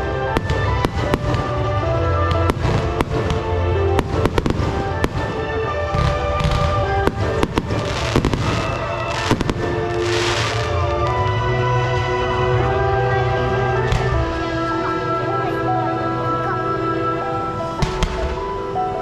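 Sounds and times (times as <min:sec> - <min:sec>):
fireworks bangs: 0:00.0 - 0:12.6, 0:13.8 - 0:14.7, 0:17.8 - 0:18.8
background music: 0:00.0 - 0:19.0
fireworks crackling: 0:00.0 - 0:19.0.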